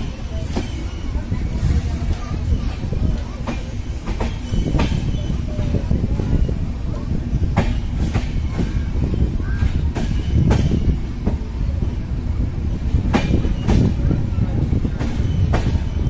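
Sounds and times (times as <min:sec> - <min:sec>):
train coach rumbling: 0:00.0 - 0:16.0.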